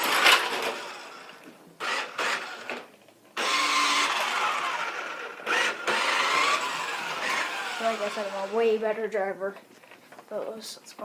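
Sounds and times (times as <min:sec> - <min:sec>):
toy car electric motor whirring: 0:00.0 - 0:02.8, 0:03.4 - 0:08.8.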